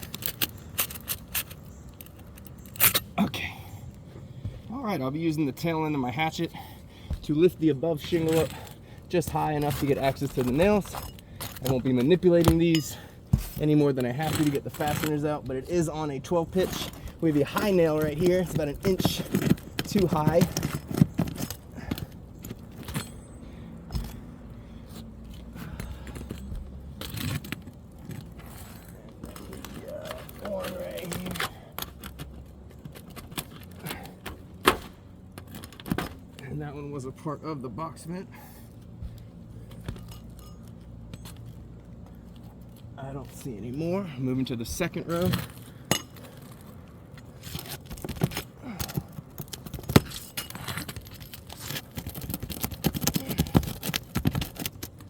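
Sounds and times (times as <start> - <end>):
hand tools scraping shingles: 5.6 - 36.6, 43.1 - 55.0.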